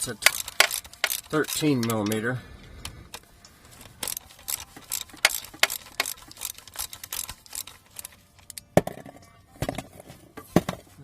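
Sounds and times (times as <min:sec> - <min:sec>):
socket ratchet clicking: 0:00.0 - 0:08.7.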